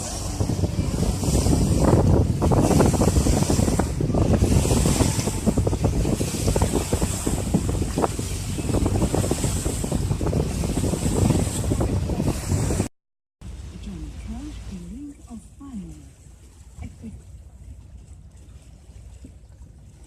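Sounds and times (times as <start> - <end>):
wind buffeting microphone: 0.0 - 12.9
water rushing along hull: 0.0 - 20.0.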